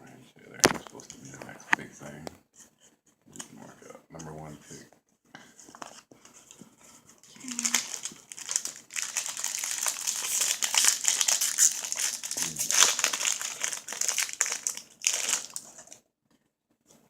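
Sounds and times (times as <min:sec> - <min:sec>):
wrapper tearing and crinkling: 0:07.4 - 0:16.0.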